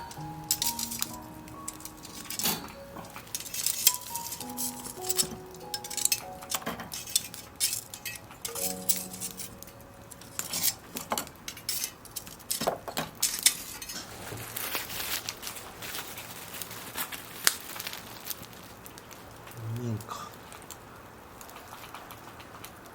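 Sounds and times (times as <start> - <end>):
tableware clinks and clicks: 0.0 - 14.1.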